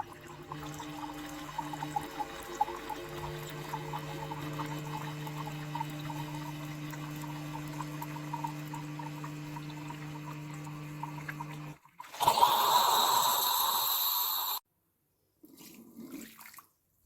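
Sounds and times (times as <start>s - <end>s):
coffee dripping into cup: 0.0s - 11.8s
coffee machine pump humming: 0.0s - 14.6s.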